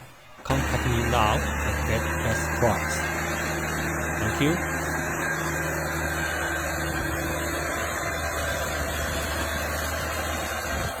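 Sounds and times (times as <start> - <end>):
forklift diesel engine idling: 0.4 - 11.0.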